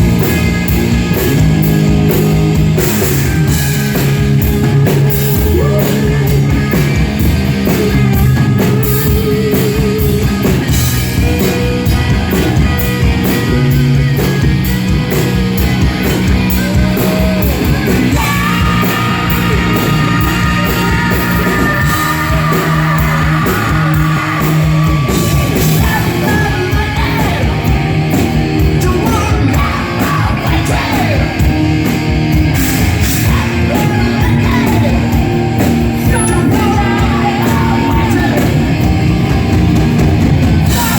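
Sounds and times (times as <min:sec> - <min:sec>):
hard rock band playing: 0:00.0 - 0:40.9
man singing and yelling: 0:05.0 - 0:10.5, 0:16.4 - 0:31.8, 0:33.0 - 0:39.4, 0:40.6 - 0:40.9.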